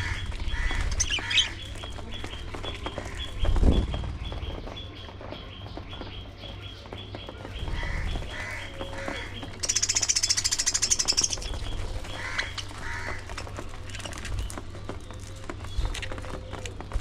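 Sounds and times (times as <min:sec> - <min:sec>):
budgerigars chirping: 0:00.0 - 0:03.6, 0:05.6 - 0:13.2
low rumble: 0:00.0 - 0:09.6.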